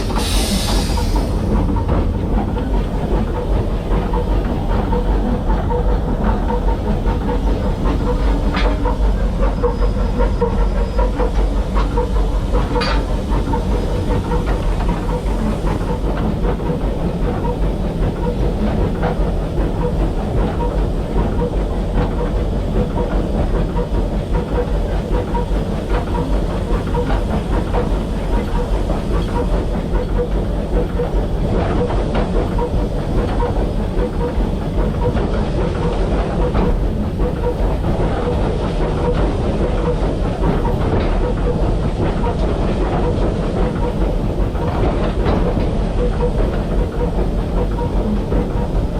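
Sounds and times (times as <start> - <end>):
steam hissing: 0.0 - 4.7, 6.5 - 18.4
steam locomotive rumble: 0.0 - 48.9.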